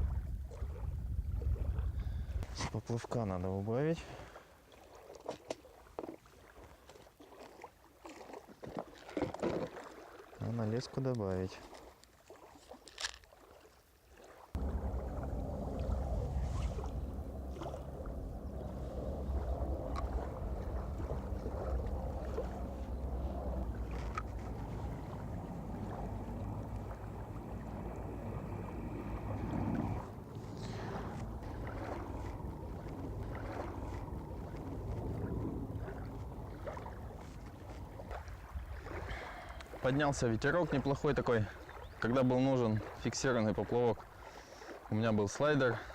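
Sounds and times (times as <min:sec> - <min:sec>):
wind buffeting microphone: 0:00.0 - 0:02.8, 0:14.6 - 0:42.0
small waves lapping: 0:00.0 - 0:45.9.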